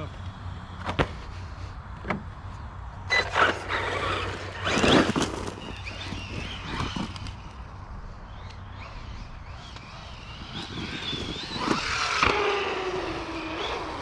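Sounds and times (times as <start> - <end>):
rc car motor whine: 2.9 - 14.0
tyres scraping on ground: 3.1 - 7.6.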